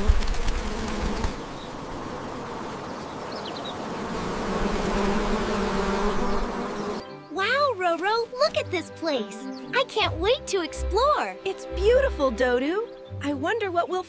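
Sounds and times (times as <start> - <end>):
bees buzzing: 0.0 - 7.3.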